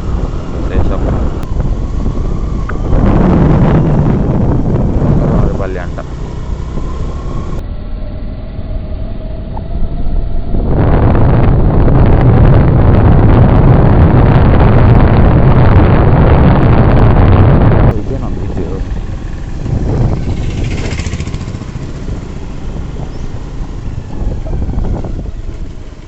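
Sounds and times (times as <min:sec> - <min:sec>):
vehicle road noise: 0:00.0 - 0:26.0.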